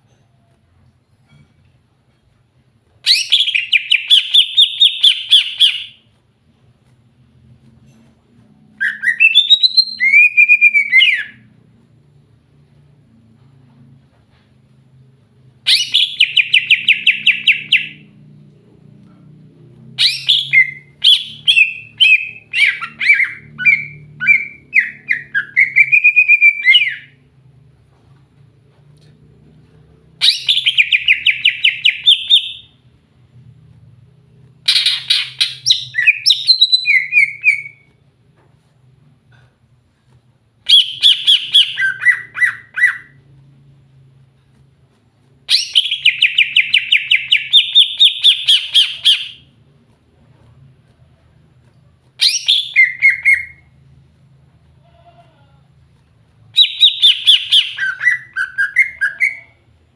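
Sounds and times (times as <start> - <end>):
bird chirping rapidly: 15.7 - 18.0, 20.0 - 27.2, 30.2 - 32.7, 34.7 - 37.8, 40.7 - 43.2, 45.5 - 49.4, 52.2 - 53.6, 56.6 - 59.6.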